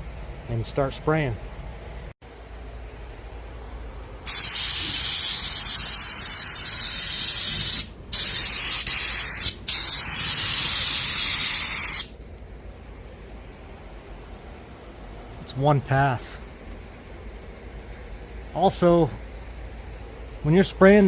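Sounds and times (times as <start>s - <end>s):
spray gun hissing: 4.2s - 12.2s.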